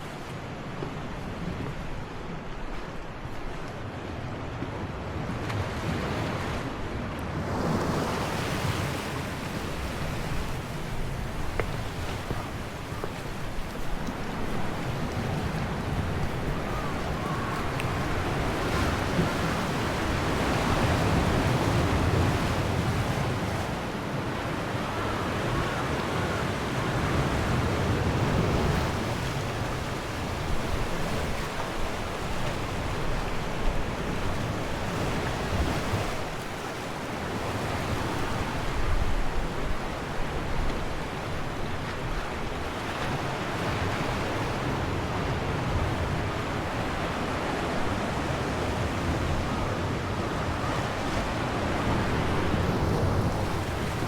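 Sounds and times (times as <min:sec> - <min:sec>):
ocean waves on shore: 0:00.0 - 0:54.0
wind buffeting microphone: 0:37.6 - 0:54.0.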